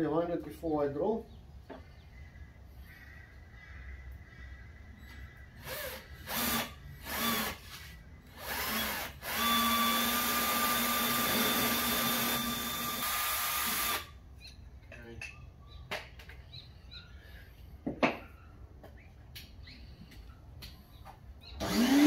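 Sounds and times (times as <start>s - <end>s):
power drill boring fiberglass: 5.6s - 14.1s, 21.6s - 22.0s.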